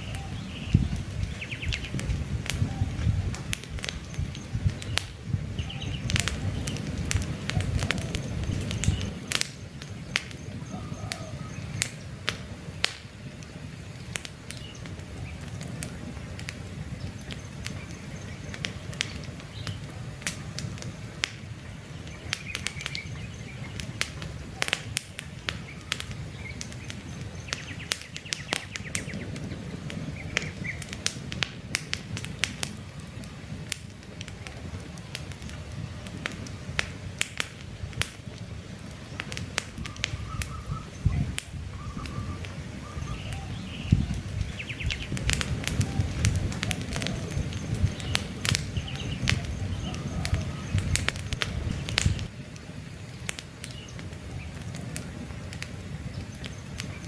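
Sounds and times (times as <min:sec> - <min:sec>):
campfire crackling and popping: 0:00.0 - 0:57.0
faint bird chirps: 0:39.8 - 0:50.9.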